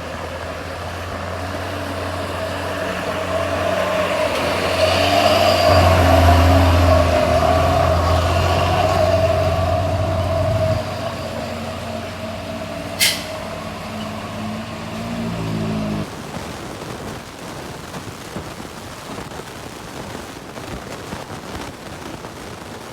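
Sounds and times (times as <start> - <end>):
truck engine running: 0.0 - 16.3
air brake hiss: 12.9 - 13.5.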